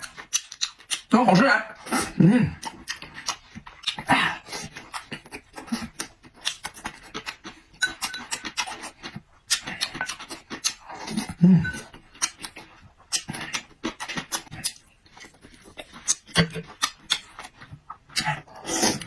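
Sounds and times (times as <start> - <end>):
person chewing food: 0.0 - 19.0.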